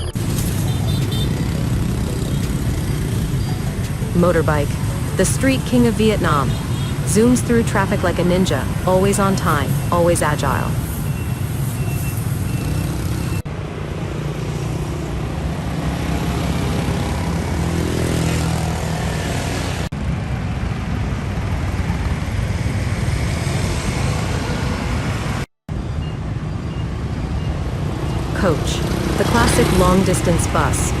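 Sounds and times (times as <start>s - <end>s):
street traffic: 0.0s - 31.0s.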